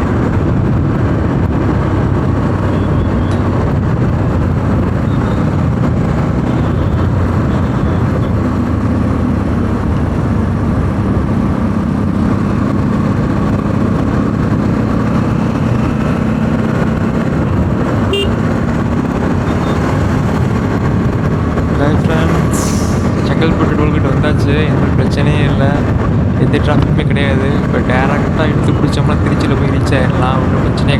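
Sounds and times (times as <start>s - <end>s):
motorcycle engine cruising: 0.0s - 30.9s
wind rush over microphone: 0.0s - 30.9s.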